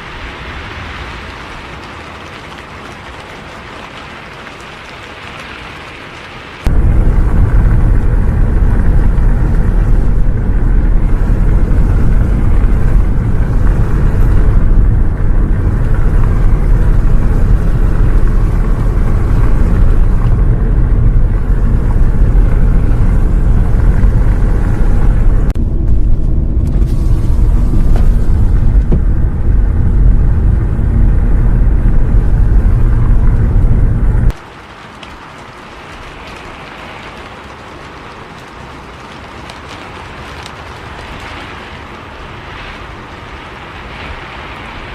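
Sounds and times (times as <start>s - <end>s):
bus engine rumble: 6.7s - 34.4s.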